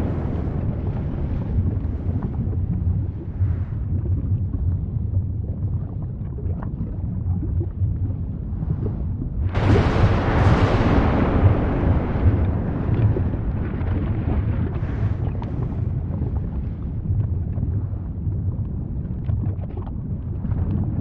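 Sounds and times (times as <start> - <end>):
volcanic blast: 0.0 - 4.1, 9.3 - 18.2
wind buffeting microphone: 0.0 - 6.6, 7.3 - 21.0
faint crackles: 0.0 - 21.0
volcano rumbling: 0.0 - 21.0.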